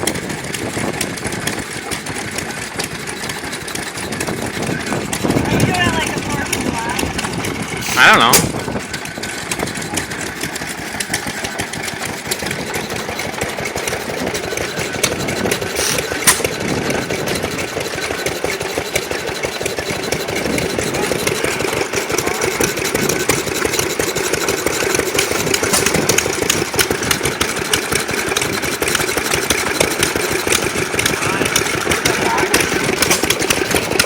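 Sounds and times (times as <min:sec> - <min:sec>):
old gas engines clattering: 0:00.0 - 0:34.0
sharp engine bang: 0:07.8 - 0:08.8, 0:15.8 - 0:16.6.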